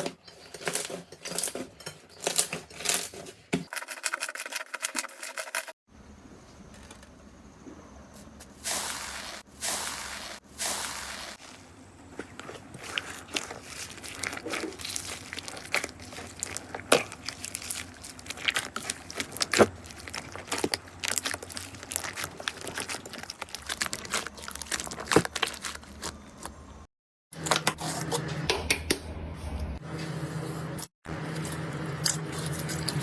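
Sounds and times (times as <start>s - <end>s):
slime crackling and popping: 12.8s - 26.2s.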